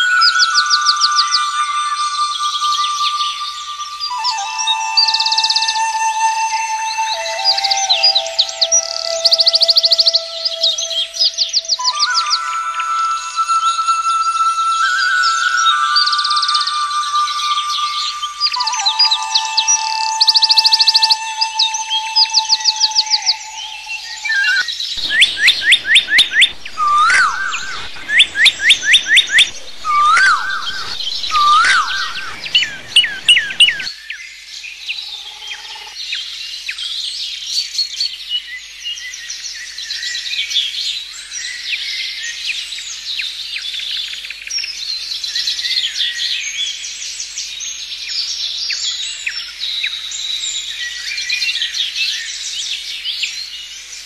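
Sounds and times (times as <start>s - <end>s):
chorus of bird chirps: 0.0s - 37.0s
bird repeating rapid falling notes: 25.0s - 33.9s.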